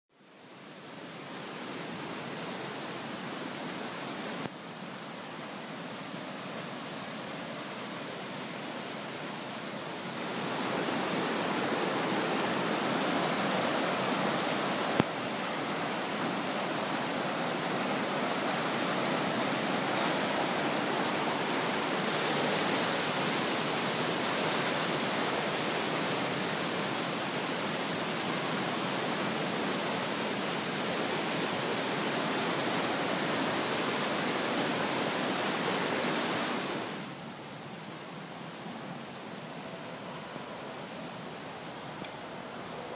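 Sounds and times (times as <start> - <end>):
rushing creek: 0.1 - 42.9.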